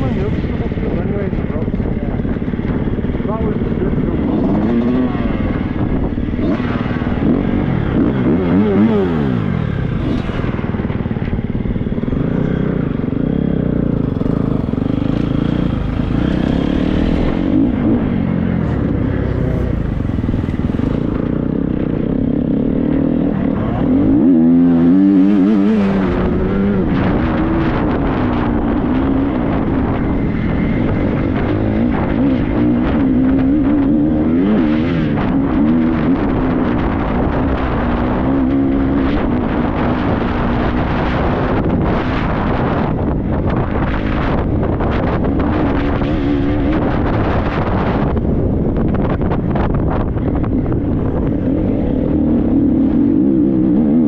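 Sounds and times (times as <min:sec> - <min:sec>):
motocross bike engine revving: 0:02.2 - 0:42.8.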